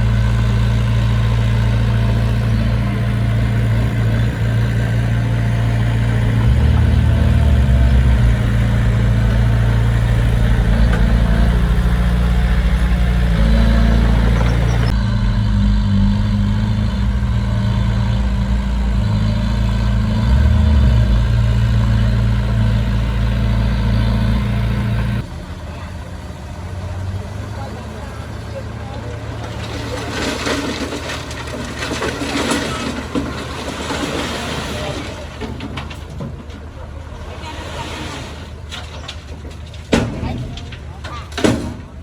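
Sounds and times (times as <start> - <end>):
heavy diesel engine running: 0.0 - 42.0.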